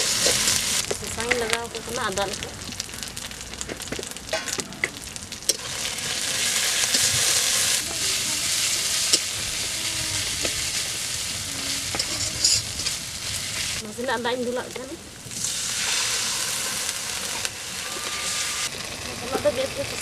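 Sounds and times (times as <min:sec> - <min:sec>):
onions sizzling in wok: 0:00.0 - 0:20.0
spatula scraping pan: 0:06.7 - 0:13.8.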